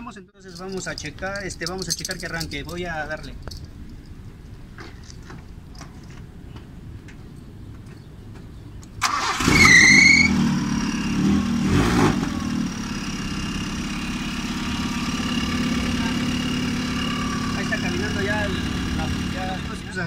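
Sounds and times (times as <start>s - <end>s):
engine starter cranking: 9.0s - 10.4s
car engine idling: 9.0s - 20.0s
engine revving with squeal: 9.1s - 12.6s, 14.0s - 20.0s.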